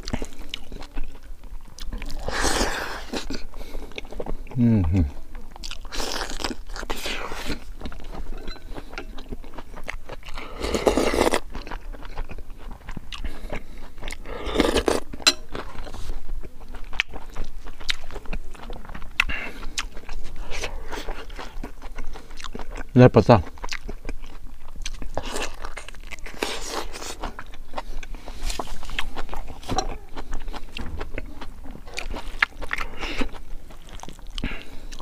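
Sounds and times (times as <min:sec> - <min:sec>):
person chewing and crunching: 0:00.0 - 0:35.0.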